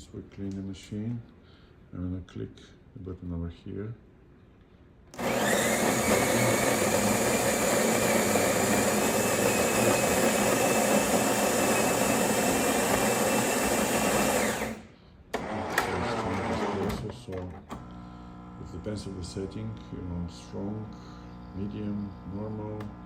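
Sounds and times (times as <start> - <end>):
coffee grinder whirring: 5.2 - 23.0.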